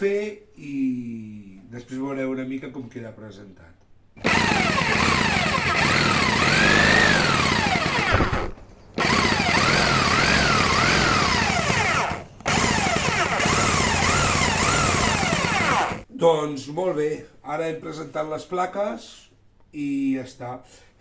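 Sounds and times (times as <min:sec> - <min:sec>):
power tool cutting under load: 0:04.2 - 0:16.0.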